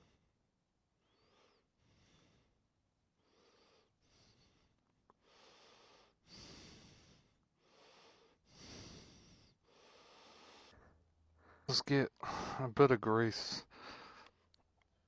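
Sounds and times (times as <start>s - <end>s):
soft breathing: 1.0s - 2.6s, 3.2s - 12.6s, 13.6s - 14.5s.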